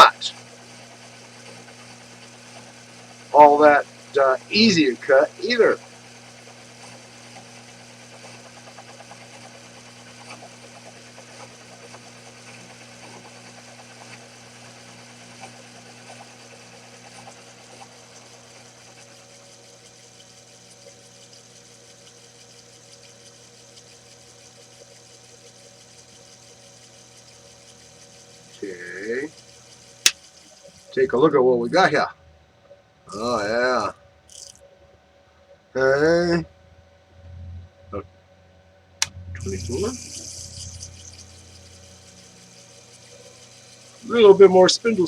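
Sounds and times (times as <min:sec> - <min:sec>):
lathe motor humming: 0:00.0 - 0:32.0, 0:38.9 - 0:45.0
small ticks: 0:18.5 - 0:30.9, 0:34.3 - 0:34.6, 0:39.0 - 0:44.0.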